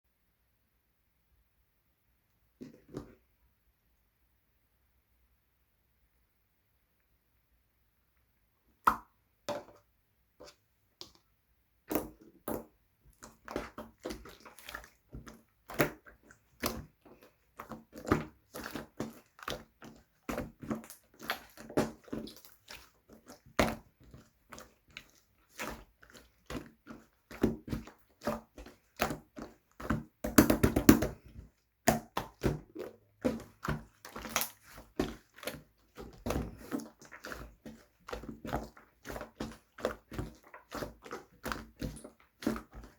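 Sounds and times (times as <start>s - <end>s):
slime squished by hand: 11.8s - 42.9s
slime crackling: 13.2s - 42.9s.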